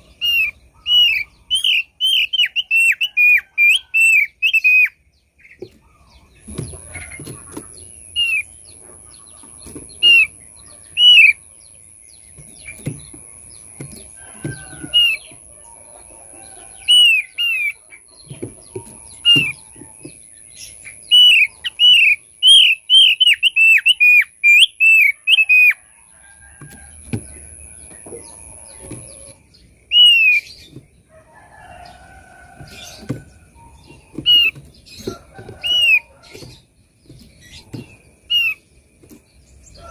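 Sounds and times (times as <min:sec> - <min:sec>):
soft knocks and flutters: 0:12.4 - 0:15.4, 0:30.5 - 0:38.2
bird whistled calls: 0:21.1 - 0:25.8, 0:29.9 - 0:30.4.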